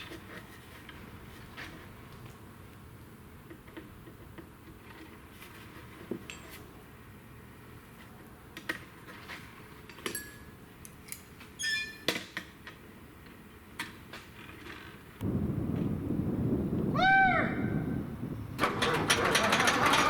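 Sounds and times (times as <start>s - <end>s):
metal tools and fasteners clinking: 9.9s - 12.1s.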